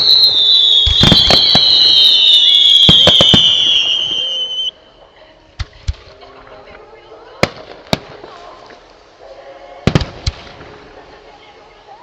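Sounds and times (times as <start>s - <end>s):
fireworks bangs: 0.0s - 4.7s, 7.4s - 8.8s, 9.8s - 11.6s
fireworks whistling: 0.0s - 5.0s.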